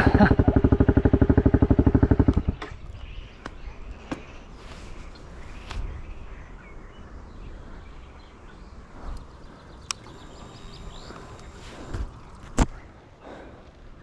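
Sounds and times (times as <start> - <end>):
wind rumble on microphone: 2.3 - 13.1
bird chirps: 2.4 - 12.4.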